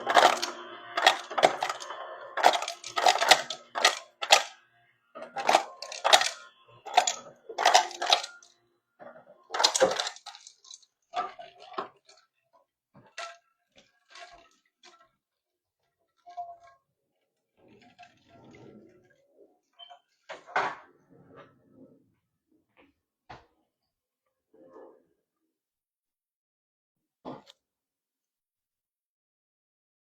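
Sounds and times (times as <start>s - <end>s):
hard objects clattering and knocking: 0.0s - 4.6s, 5.2s - 12.2s.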